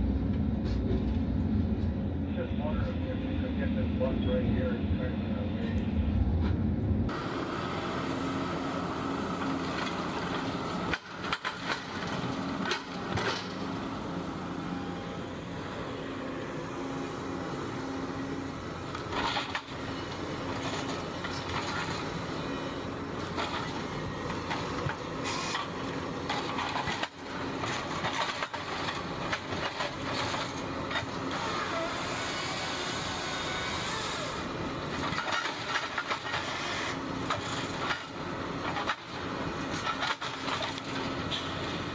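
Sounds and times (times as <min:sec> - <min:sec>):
diesel engines running under load: 0:00.0 - 0:41.9.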